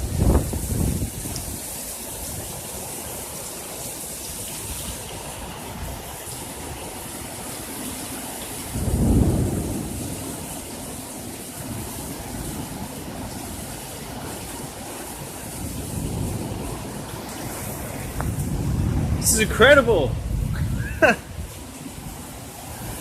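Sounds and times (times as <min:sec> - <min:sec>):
steady rain: 0:00.0 - 0:23.0
thunderclap rumbling: 0:08.7 - 0:10.8, 0:15.5 - 0:23.0.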